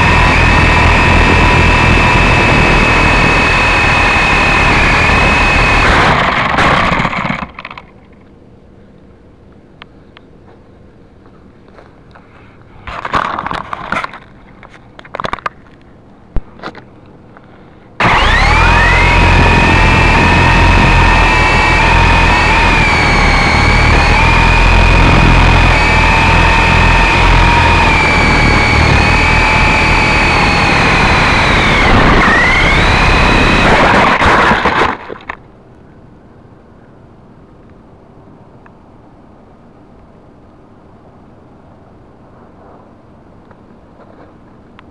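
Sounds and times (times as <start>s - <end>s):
toy helicopter rotor motor whine: 0.0s - 7.8s, 18.0s - 34.9s.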